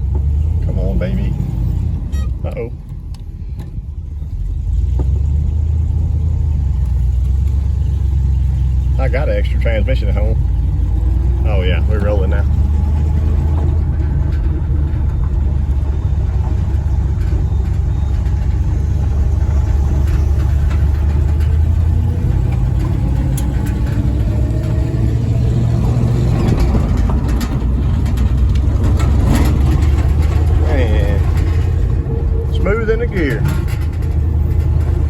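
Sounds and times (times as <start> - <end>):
pickup truck engine driving: 0.0 - 35.0.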